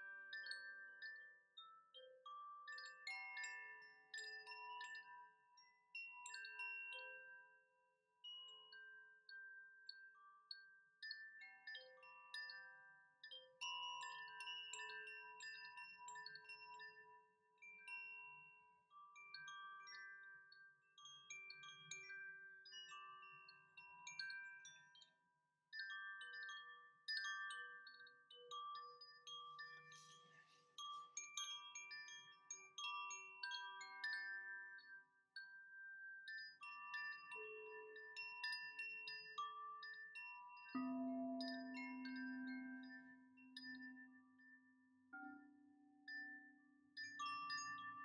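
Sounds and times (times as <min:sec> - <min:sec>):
chimes ringing faintly: 0:25.8 - 0:48.0.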